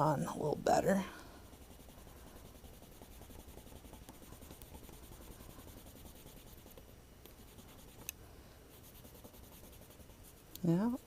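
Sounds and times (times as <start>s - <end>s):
fingers rubbing adhesive strip: 1.6s - 8.1s.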